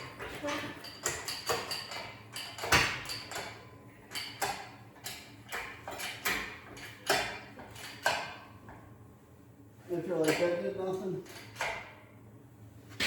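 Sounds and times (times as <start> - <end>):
sharp metal knocks: 0.8 - 3.6.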